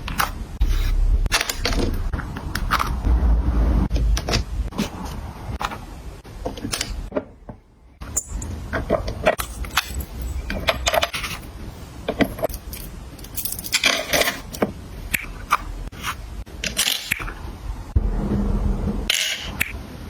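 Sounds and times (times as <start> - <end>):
items scraping: 8.7 - 14.7.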